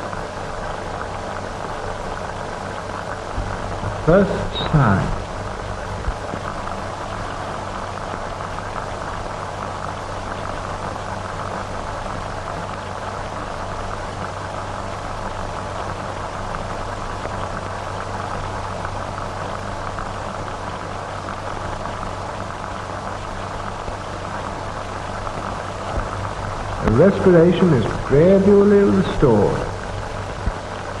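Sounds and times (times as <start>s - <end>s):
film soundtrack hiss and crackle: 0.0s - 31.0s
low constant hum: 0.0s - 31.0s.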